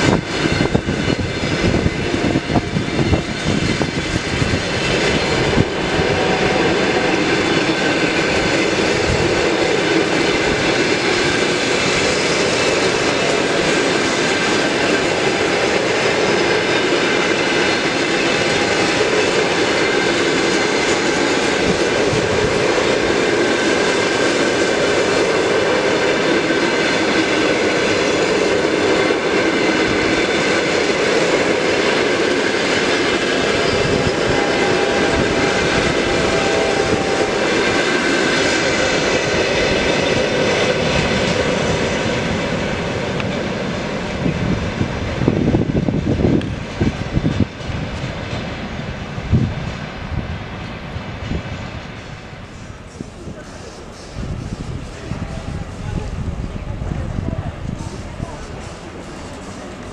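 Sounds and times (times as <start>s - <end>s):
train wheels rolling on rails: 0.0s - 59.9s.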